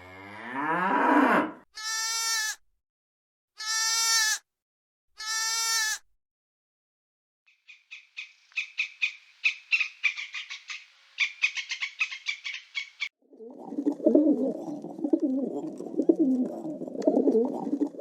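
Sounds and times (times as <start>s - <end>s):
pigeons cooing: 13.4s - 18.0s.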